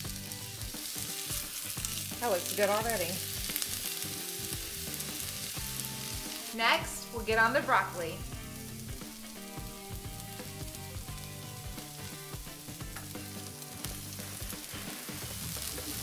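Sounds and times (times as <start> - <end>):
onions sizzling on a griddle: 0.0 - 16.0.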